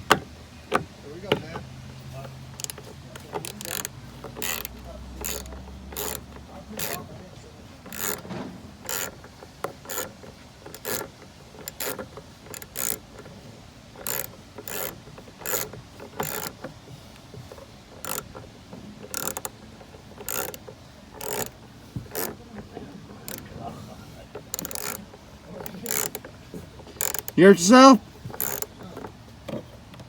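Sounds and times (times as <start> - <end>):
hand ratchet clicking: 2.6 - 7.0, 7.9 - 8.2, 8.9 - 13.3, 14.0 - 16.7, 17.5 - 18.4, 19.0 - 19.6, 20.2 - 20.6, 21.2 - 22.4, 24.4 - 25.0, 25.6 - 26.3, 27.0 - 27.4, 28.3 - 28.7.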